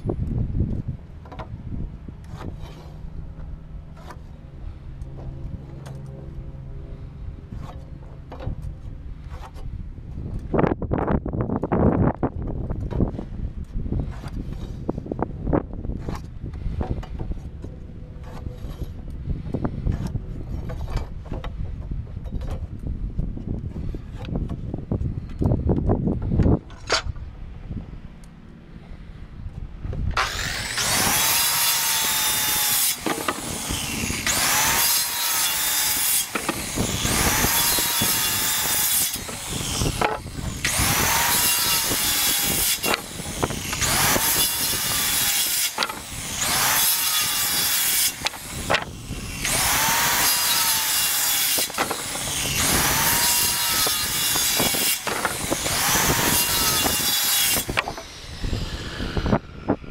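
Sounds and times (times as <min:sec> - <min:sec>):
circular saw cutting wood: 0:16.0 - 0:21.4, 0:30.1 - 0:59.9.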